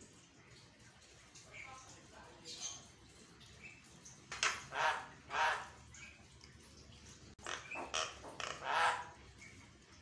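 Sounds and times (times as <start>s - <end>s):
bird giving harsh rasping calls: 4.6s - 5.8s, 7.4s - 9.2s.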